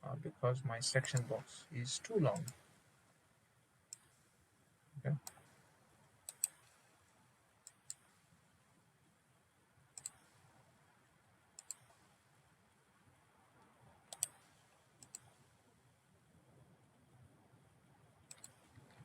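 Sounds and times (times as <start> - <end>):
faint room hiss: 0.0 - 19.0
computer mouse clicking: 1.0 - 1.3, 3.9 - 4.1, 6.2 - 6.8, 7.6 - 8.1, 10.0 - 10.3, 11.6 - 12.0, 14.1 - 15.4, 18.3 - 19.0.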